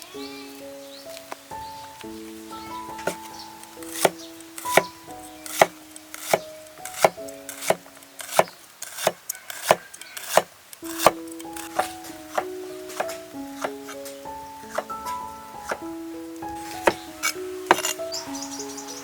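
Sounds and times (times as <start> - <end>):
background music: 0.0 - 9.1, 10.8 - 19.0
knife chopping on wooden board: 3.9 - 4.9, 5.5 - 13.8, 16.8 - 18.0.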